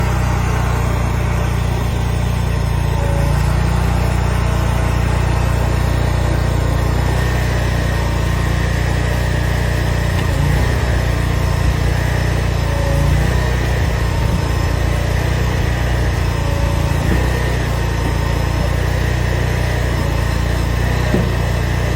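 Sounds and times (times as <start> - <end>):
loader engine running: 0.0 - 21.9.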